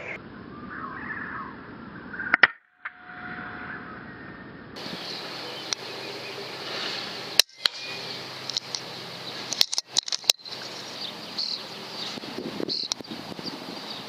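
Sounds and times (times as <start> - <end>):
small birds chirping: 4.1 - 14.0
sharp clicks: 8.4 - 8.9, 9.5 - 10.7, 12.7 - 13.1.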